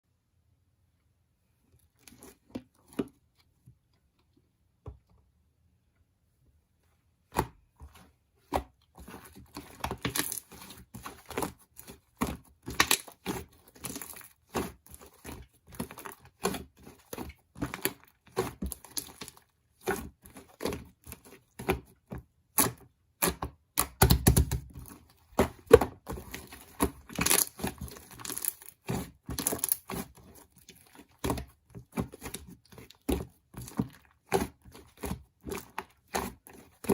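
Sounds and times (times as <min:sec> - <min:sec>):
crinkling and crackling: 0:24.4 - 0:36.9.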